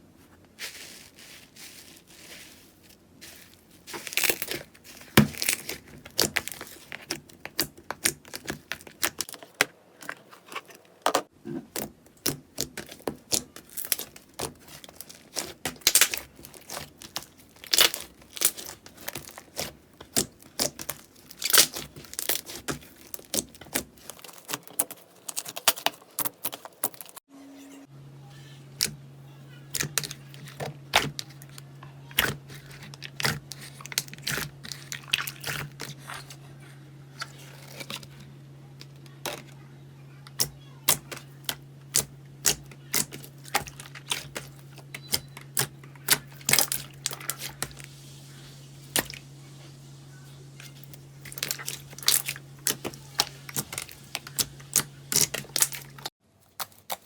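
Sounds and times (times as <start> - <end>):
steady low hum: 27.3 - 56.1.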